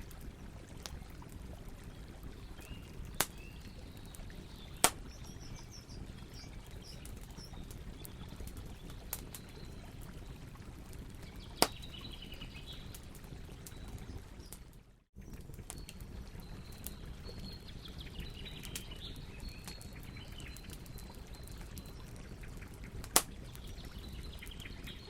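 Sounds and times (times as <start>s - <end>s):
campfire crackling: 0.0s - 25.0s
faint bird chirps: 2.0s - 10.4s
sharp pops of fire: 3.2s - 3.4s, 4.8s - 5.2s, 11.6s - 11.9s, 23.0s - 23.4s.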